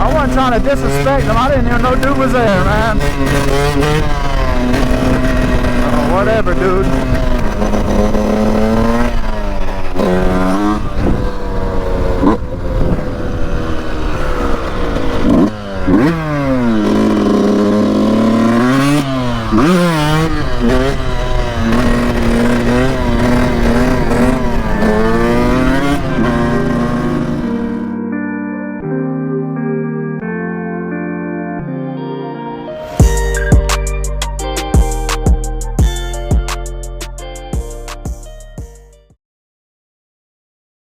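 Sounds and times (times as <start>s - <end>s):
wind rumble: 0.0s - 27.9s
motorcycle engine revving: 0.0s - 28.0s, 32.9s - 38.8s.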